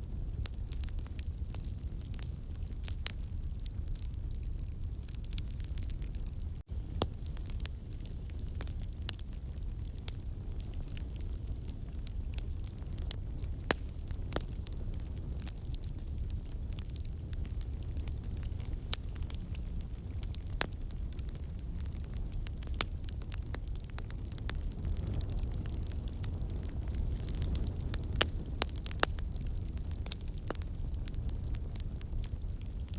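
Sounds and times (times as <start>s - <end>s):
fire crackles and pops: 0.0s - 32.9s
wood fire rumbling: 0.0s - 32.9s.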